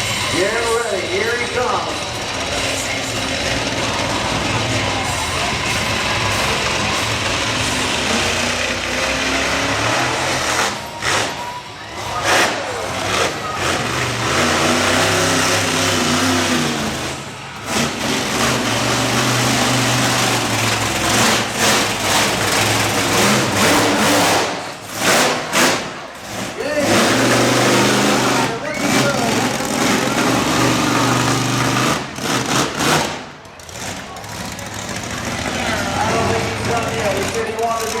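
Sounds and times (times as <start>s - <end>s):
monster truck engine revving: 0.0s - 38.0s.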